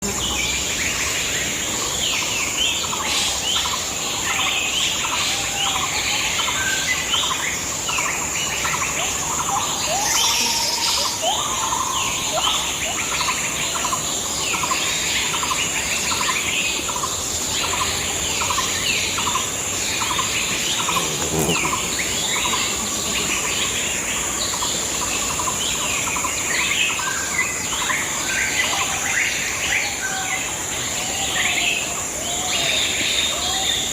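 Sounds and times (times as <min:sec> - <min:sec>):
small birds chirping: 0:08.4 - 0:27.9.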